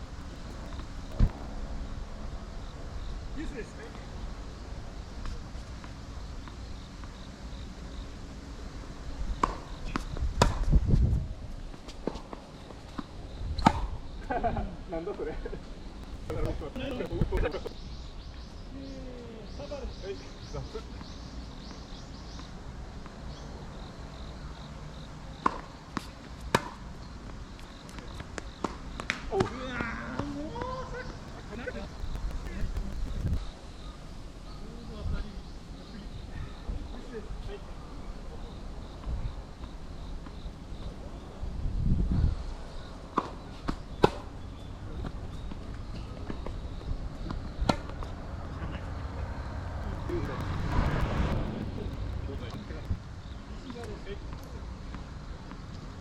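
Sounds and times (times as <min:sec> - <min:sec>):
wind rumble on microphone: 0:00.0 - 0:02.5, 0:10.0 - 0:11.7, 0:16.0 - 0:18.2, 0:31.1 - 0:34.0, 0:41.4 - 0:42.7, 0:49.2 - 0:53.4
low wind rumble: 0:00.0 - 0:06.8, 0:08.2 - 0:11.7, 0:13.1 - 0:18.8, 0:30.7 - 0:38.0, 0:41.1 - 0:43.1, 0:46.6 - 0:54.1
tennis ball bouncing: 0:09.4 - 0:10.7, 0:25.4 - 0:26.8
tennis ball hits and bounces: 0:09.4 - 0:10.7, 0:13.0 - 0:13.9, 0:25.4 - 0:26.8, 0:43.2 - 0:44.3, 0:47.3 - 0:48.2.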